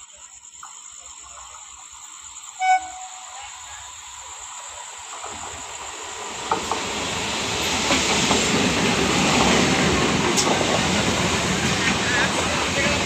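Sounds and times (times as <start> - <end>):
train wheels rushing on rails: 0.4 - 13.0
train clank: 5.0 - 13.0.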